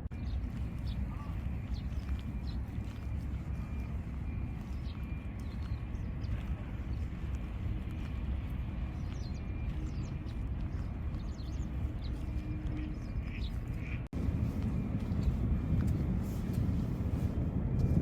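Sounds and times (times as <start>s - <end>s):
small birds chirping: 0.0s - 14.1s
low rumble: 0.0s - 18.0s.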